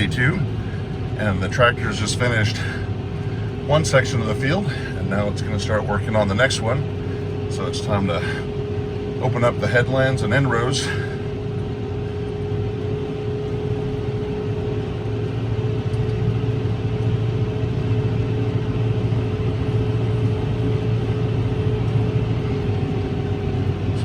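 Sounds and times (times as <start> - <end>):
engine whine: 0.0 - 24.0
tractor engine droning: 0.0 - 24.0.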